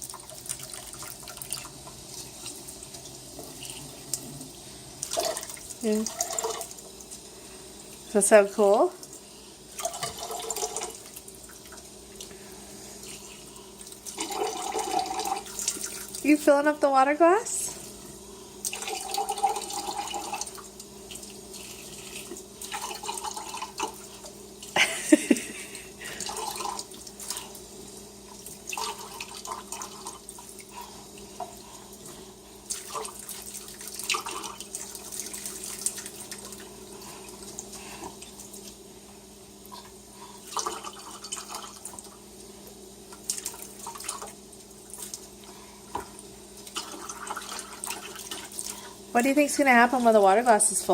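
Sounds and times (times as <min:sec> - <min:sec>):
water splashing in sink: 0:00.0 - 0:07.3, 0:07.9 - 0:38.9, 0:39.6 - 0:50.9
water pouring into a glass: 0:09.8 - 0:11.0, 0:14.0 - 0:16.2, 0:18.7 - 0:20.7, 0:22.6 - 0:24.0.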